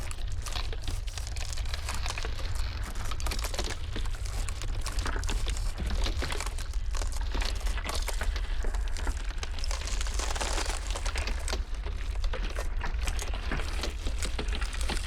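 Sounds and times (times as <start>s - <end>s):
ice cracking and crackling: 0.0s - 15.0s.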